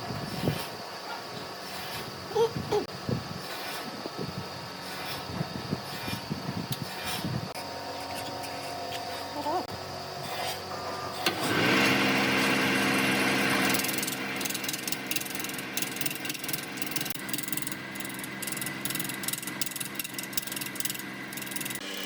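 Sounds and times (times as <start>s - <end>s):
wood lathe motor humming: 10.8s - 22.0s
turning tool rasping on wood: 13.3s - 22.0s.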